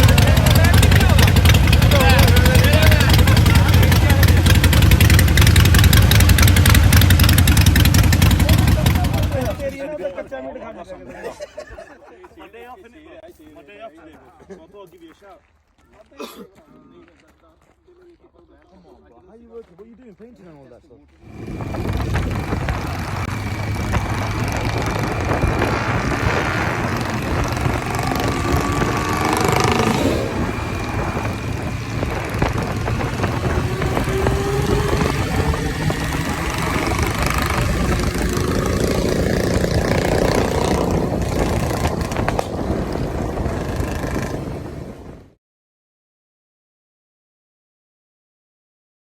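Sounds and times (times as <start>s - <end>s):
heavy wind noise: 0.0s - 9.7s, 21.3s - 45.4s
motorcycle engines revving: 0.0s - 9.9s, 21.2s - 45.2s.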